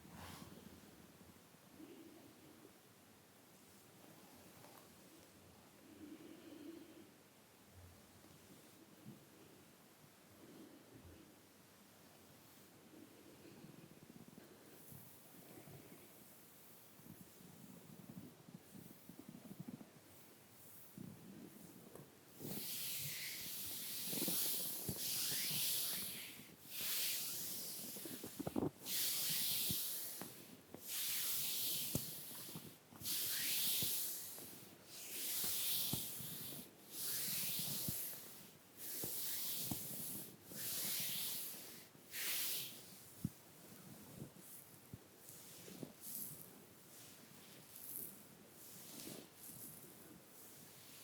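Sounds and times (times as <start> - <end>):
brush sweeping over skin: 14.8 - 51.0.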